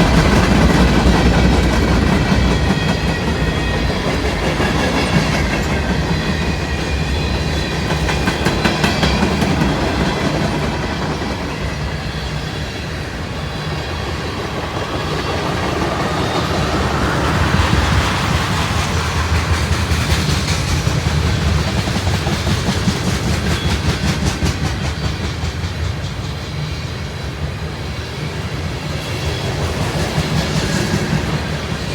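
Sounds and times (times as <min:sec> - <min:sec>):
train wheels clattering over rails: 0:00.0 - 0:31.9.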